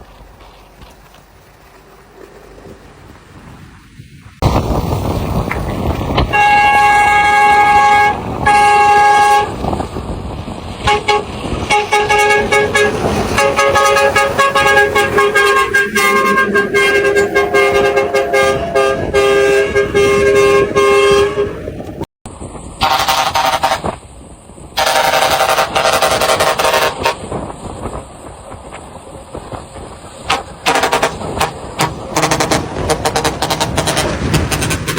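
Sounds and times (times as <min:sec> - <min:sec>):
truck horn blasts: 0:06.2 - 0:09.9, 0:10.8 - 0:22.0, 0:22.8 - 0:24.0, 0:24.8 - 0:27.3, 0:30.2 - 0:34.9.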